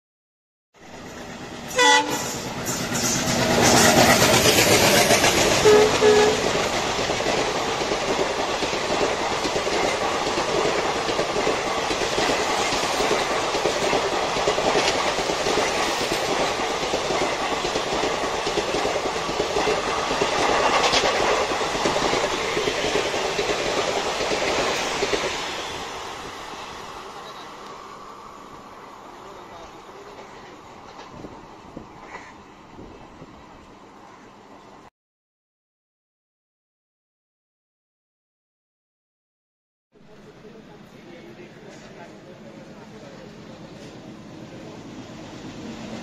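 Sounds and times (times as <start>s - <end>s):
train horn blasts: 1.7s - 2.4s, 5.6s - 6.5s
wheels clacking over rail joints: 2.2s - 25.6s.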